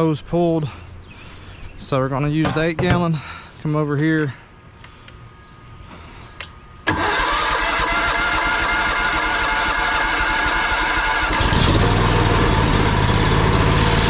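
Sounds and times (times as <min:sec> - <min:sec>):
pressure washer engine running: 0:07.6 - 0:14.0.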